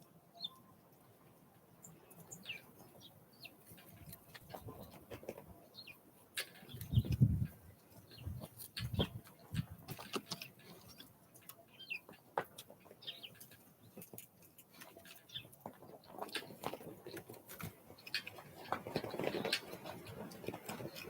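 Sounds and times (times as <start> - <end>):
birds tapping and knocking: 6.4 - 11.1.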